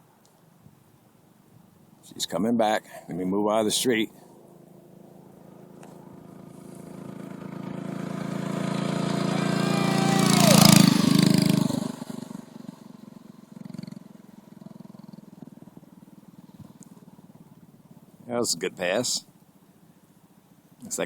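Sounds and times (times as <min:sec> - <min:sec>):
minibike engine passing by: 0:04.2 - 0:18.1.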